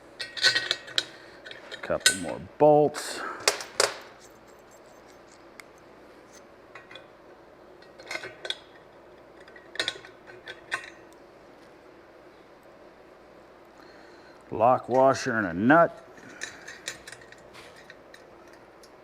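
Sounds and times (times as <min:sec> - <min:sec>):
metal bolts clinking: 0:00.2 - 0:02.4.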